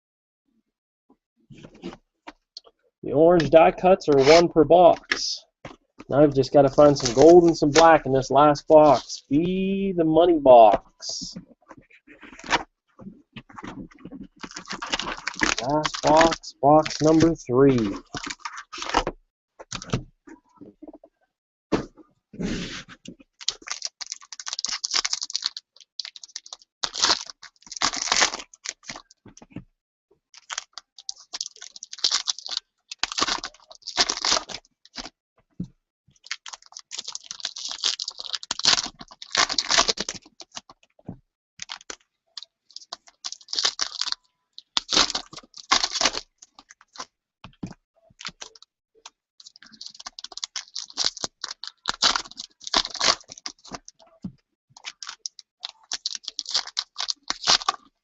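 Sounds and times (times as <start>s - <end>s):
wrapper crackling and ripping: 13.6s - 19.0s, 23.4s - 29.1s, 30.4s - 35.1s, 36.2s - 40.7s, 41.6s - 47.1s, 49.4s - 54.0s, 54.8s - 57.9s.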